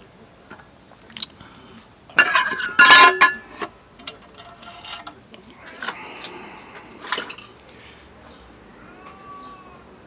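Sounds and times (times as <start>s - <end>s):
screws clinking against metal: 2.2s - 6.3s.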